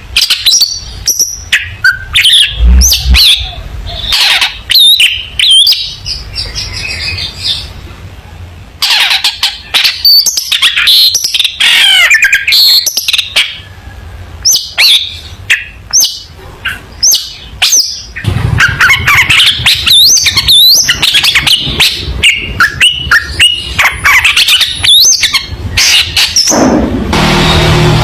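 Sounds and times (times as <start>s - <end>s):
shrike singing chirps and whistles: 0.2s - 7.7s, 8.9s - 13.7s, 14.4s - 26.6s.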